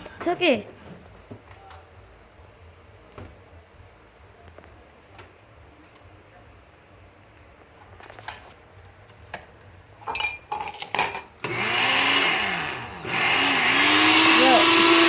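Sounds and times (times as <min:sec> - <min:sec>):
glass blender jar clinking: 0:10.0 - 0:11.4.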